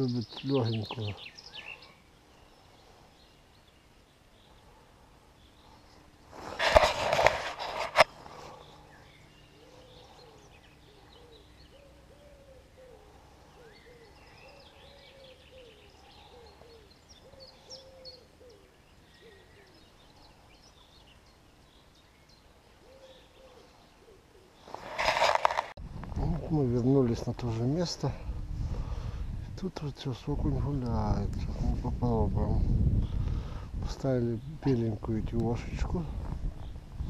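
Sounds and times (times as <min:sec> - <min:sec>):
low hooting bird notes: 0:08.0 - 0:24.8.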